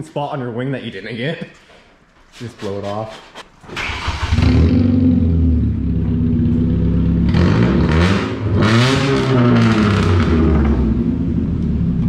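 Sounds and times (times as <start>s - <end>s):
loud car exhaust revving: 4.1s - 12.0s.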